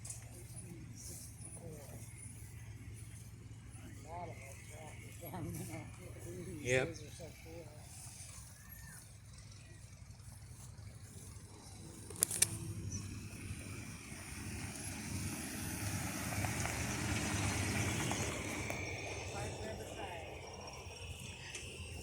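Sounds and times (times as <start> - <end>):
vehicle engine rumbling: 0.0 - 22.0
sharp clicks: 12.0 - 12.9.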